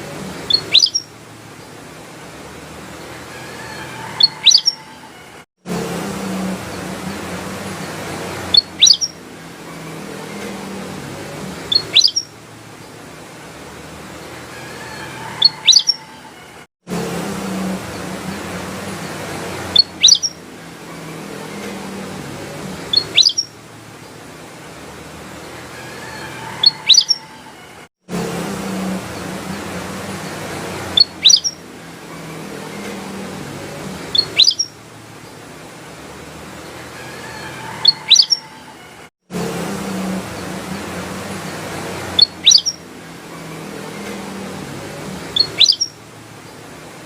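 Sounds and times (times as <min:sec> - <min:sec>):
bulbul chirping: 0:00.4 - 0:01.1, 0:04.2 - 0:04.8, 0:08.5 - 0:09.2, 0:11.7 - 0:12.3, 0:19.7 - 0:20.4, 0:22.9 - 0:23.5, 0:26.6 - 0:27.2, 0:31.0 - 0:31.6, 0:34.1 - 0:34.7, 0:42.2 - 0:42.8, 0:45.4 - 0:46.0.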